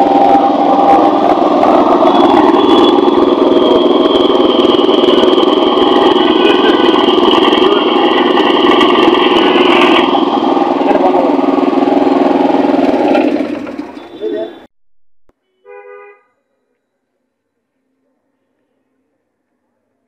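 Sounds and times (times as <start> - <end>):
water pump engine running: 0.0 - 14.4
high-pitched engine whine: 0.0 - 14.7.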